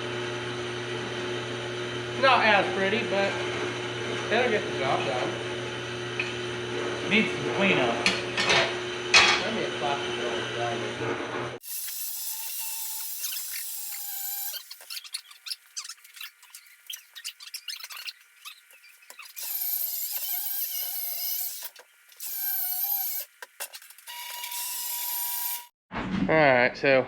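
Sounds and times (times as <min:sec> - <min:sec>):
grinder grinding metal: 0:11.6 - 0:25.7.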